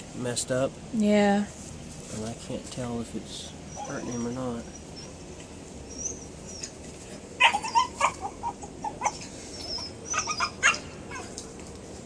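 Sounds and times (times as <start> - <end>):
high-pitched animal cries: 3.6 - 5.2, 7.4 - 11.4.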